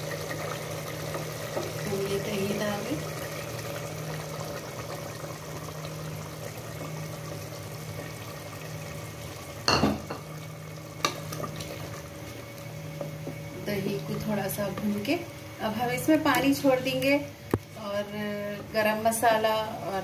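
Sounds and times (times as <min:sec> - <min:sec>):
gravy sizzling in a pot: 0:00.0 - 0:20.0.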